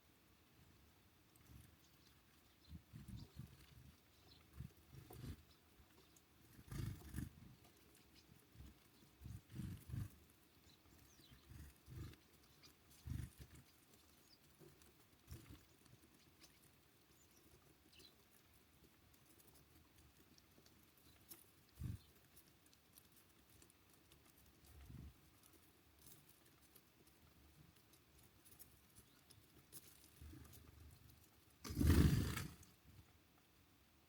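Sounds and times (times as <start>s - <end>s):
faint bird chirp: 0.0s - 22.7s, 28.1s - 32.7s
loud rustling burst: 31.6s - 32.6s.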